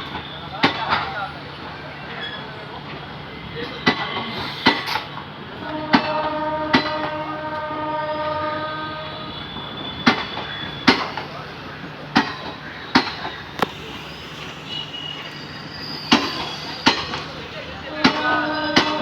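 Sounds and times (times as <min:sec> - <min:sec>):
train wheels clacking on rail joints: 0:00.0 - 0:01.3, 0:02.1 - 0:19.0
train horn: 0:05.6 - 0:11.0, 0:17.8 - 0:19.0.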